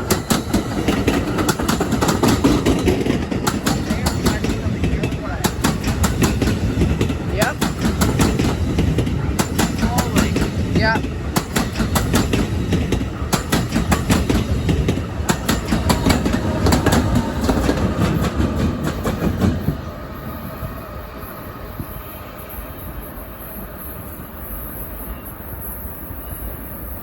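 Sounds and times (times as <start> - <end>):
train wheels clicking over rails: 0.0 - 21.2
train rumble: 0.0 - 27.0.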